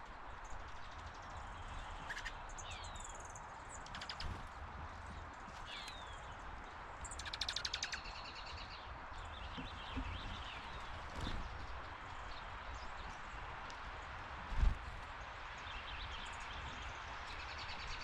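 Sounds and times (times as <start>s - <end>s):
birds chirping: 0.4s - 18.0s
bird rattling calls: 3.8s - 4.6s.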